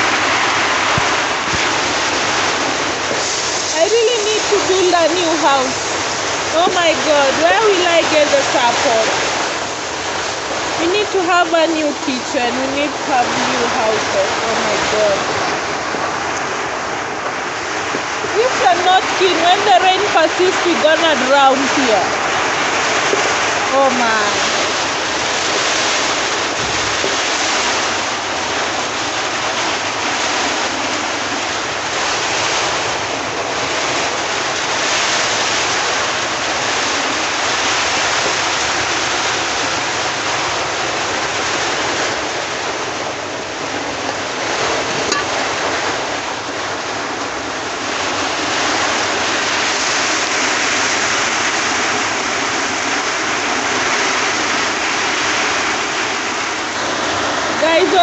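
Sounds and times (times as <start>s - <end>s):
heavy rain falling: 0.0s - 58.0s
rainwater running on ground: 0.0s - 58.0s.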